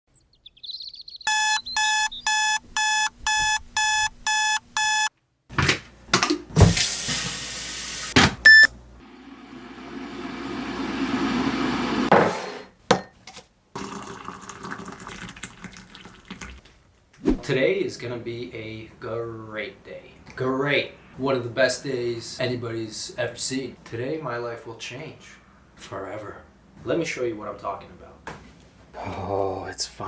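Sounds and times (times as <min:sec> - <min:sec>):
alarm clock beeping: 0:01.3 - 0:05.1, 0:08.5 - 0:08.7.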